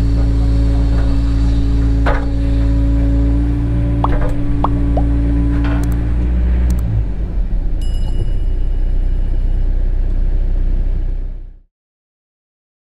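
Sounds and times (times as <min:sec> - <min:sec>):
diesel engine rumbling: 0:00.0 - 0:11.7.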